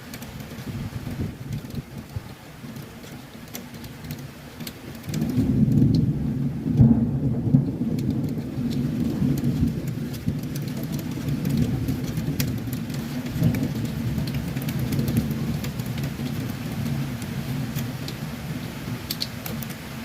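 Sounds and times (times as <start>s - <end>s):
heavy rain: 0.0s - 20.0s
raindrops ticking: 0.0s - 20.0s
thunder rumbling: 5.0s - 20.0s.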